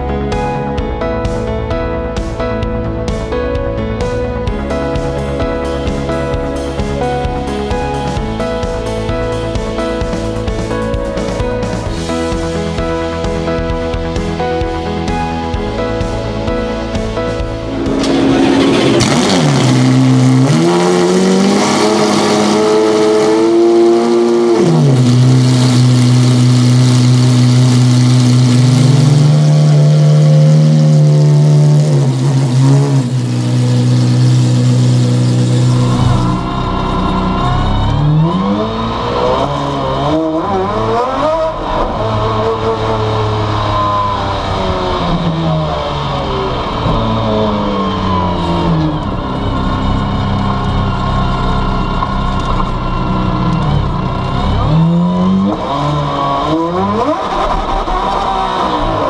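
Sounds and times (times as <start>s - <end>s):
race car engine revving: 17.4s - 59.0s.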